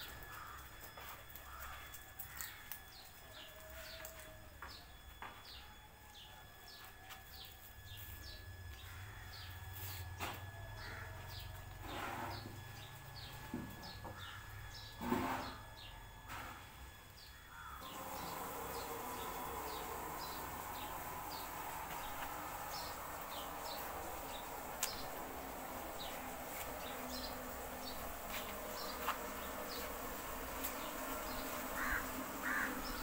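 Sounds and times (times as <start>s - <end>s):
faint steady high tone: 0.0s - 8.8s.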